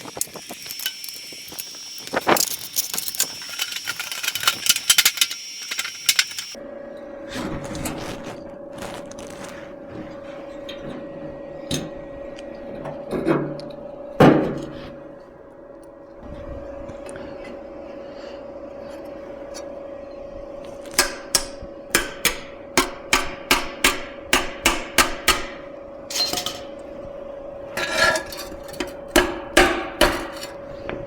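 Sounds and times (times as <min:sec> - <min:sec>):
steady hum: 0:00.0 - 0:31.0
hammer striking sheet metal: 0:21.0 - 0:26.7, 0:29.1 - 0:30.4.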